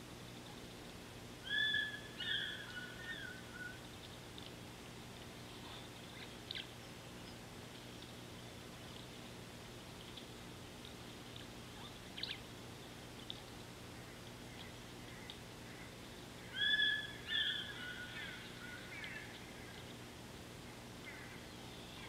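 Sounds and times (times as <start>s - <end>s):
steady low hum: 0.0s - 22.0s
bird calling: 1.4s - 4.2s, 14.0s - 19.9s, 21.0s - 22.0s
faint ticks and chirps: 2.1s - 22.0s.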